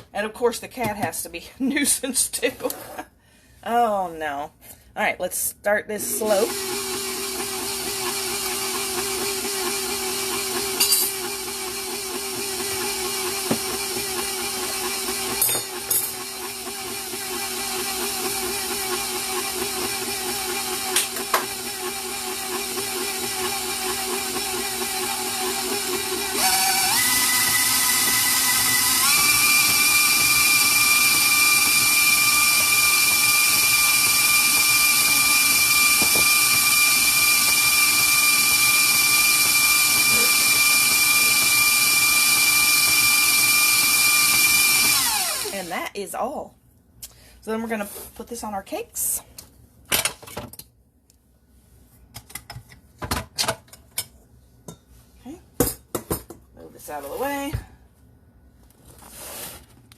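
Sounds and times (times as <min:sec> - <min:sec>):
stand mixer motor whine: 0:06.0 - 0:45.6.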